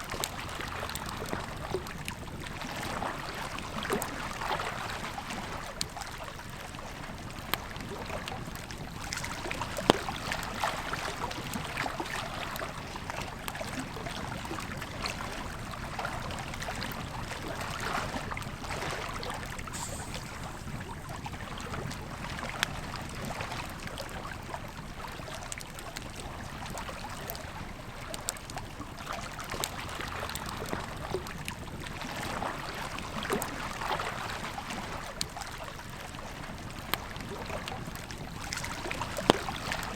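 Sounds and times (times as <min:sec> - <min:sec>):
campfire crackling: 0:18.2 - 0:23.0.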